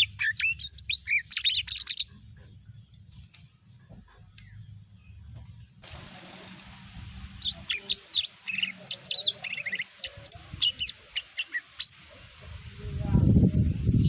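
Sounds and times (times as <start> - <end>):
bird chirping and whistling: 0.0 - 2.1, 7.4 - 12.0.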